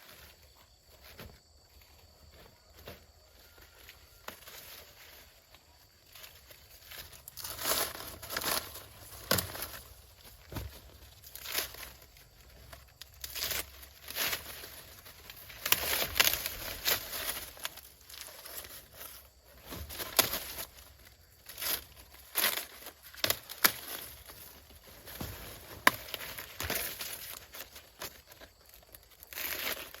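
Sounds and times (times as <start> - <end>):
dry leaves rustling and crackling: 3.4 - 30.0
stalks snapping: 9.2 - 9.8, 15.5 - 17.0, 21.6 - 24.1.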